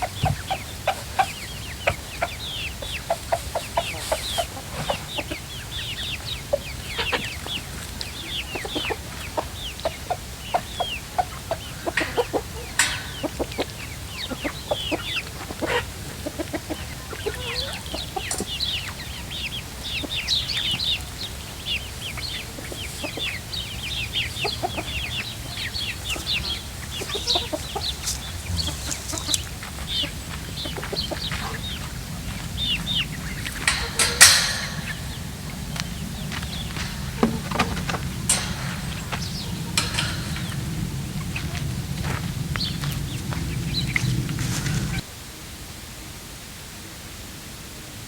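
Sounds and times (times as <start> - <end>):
chickens clucking and chirping: 0.0 - 45.1
sharp knocks: 30.6 - 45.0.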